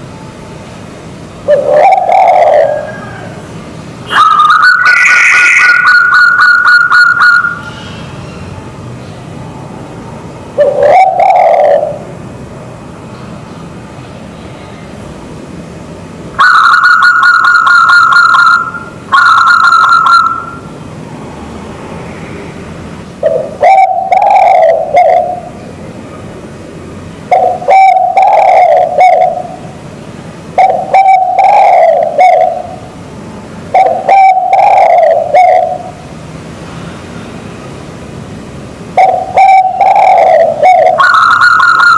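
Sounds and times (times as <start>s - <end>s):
dove lower multi-note coos: 1.2s - 8.6s, 10.5s - 12.2s, 16.3s - 20.8s, 23.2s - 36.1s, 38.9s - 41.9s
dove pulsed higher coos: 1.4s - 8.1s, 10.5s - 12.2s, 16.4s - 20.7s, 23.2s - 25.8s, 27.2s - 29.8s, 30.5s - 33.0s, 33.7s - 36.1s, 38.9s - 41.9s.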